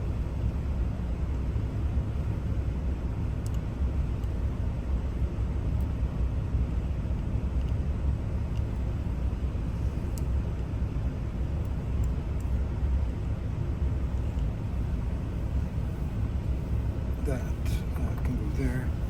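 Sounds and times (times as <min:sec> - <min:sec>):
steady low rumble: 0:00.0 - 0:19.0
faint light clicks: 0:03.4 - 0:04.4, 0:07.6 - 0:07.8, 0:10.1 - 0:10.3.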